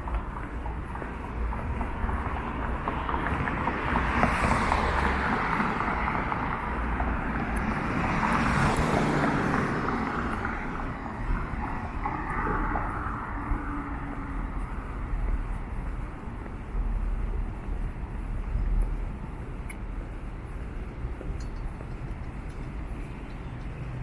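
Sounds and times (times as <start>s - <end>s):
city traffic passing: 0.0s - 24.0s
vehicles passing: 0.0s - 24.0s.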